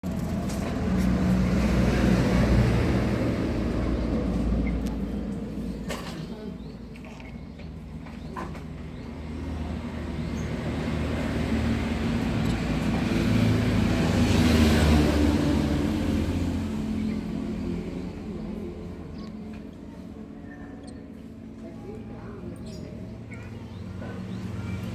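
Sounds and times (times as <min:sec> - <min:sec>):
vehicle passing by: 0:00.0 - 0:05.9, 0:09.1 - 0:20.3, 0:22.6 - 0:24.9.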